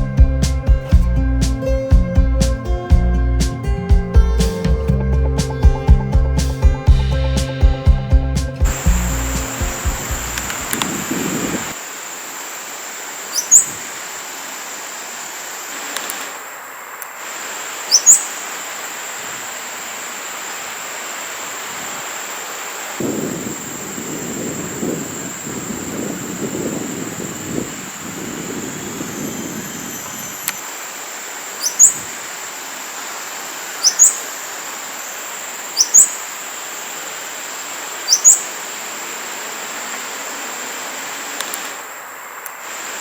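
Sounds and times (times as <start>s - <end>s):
low rumble: 0.0s - 11.8s
high-pitched drone: 4.8s - 16.2s, 23.0s - 30.9s
sharp rising bird calls: 8.6s - 11.8s, 12.4s - 16.2s, 17.8s - 19.1s, 23.0s - 36.4s, 37.9s - 39.6s.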